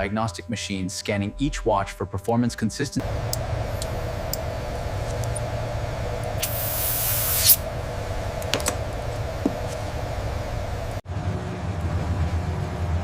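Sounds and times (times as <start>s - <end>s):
factory machinery humming: 3.0s - 13.0s
short hiss: 6.4s - 7.6s.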